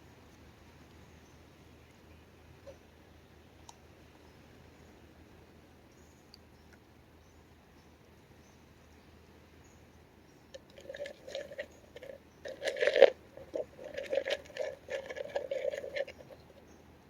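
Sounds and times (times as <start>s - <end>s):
crunchy rustling: 10.6s - 16.6s.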